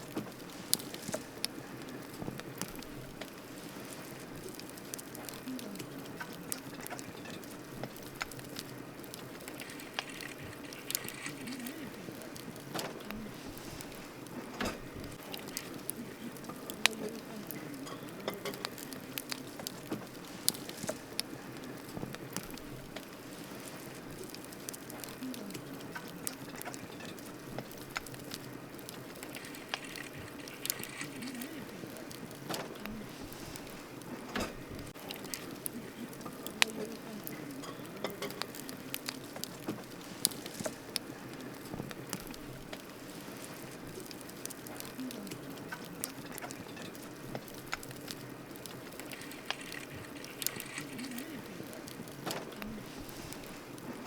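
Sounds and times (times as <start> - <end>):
campfire crackling and popping: 0.0 - 54.0
campfire hissing: 0.0 - 54.0.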